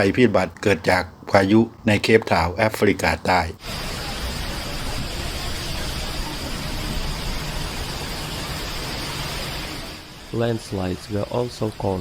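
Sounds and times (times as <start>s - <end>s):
rushing water: 3.6s - 12.0s.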